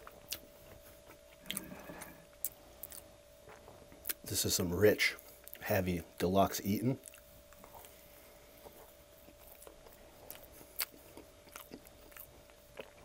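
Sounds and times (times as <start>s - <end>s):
chewing with wet mouth clicks: 0.0s - 4.2s, 7.0s - 8.0s, 8.6s - 13.0s
faint steady hum: 0.0s - 13.0s.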